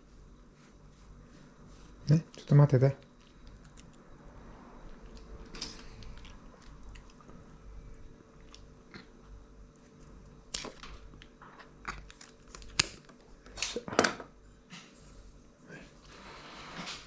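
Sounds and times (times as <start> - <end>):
pet chewing and crunching food: 2.0 - 13.2.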